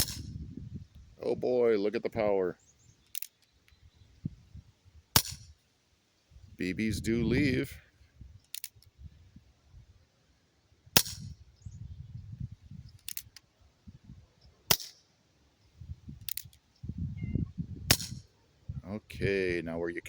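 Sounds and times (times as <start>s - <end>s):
air pistol pops: 0.0s - 0.3s, 5.2s - 5.5s, 11.0s - 11.3s, 14.7s - 15.0s, 17.9s - 18.2s.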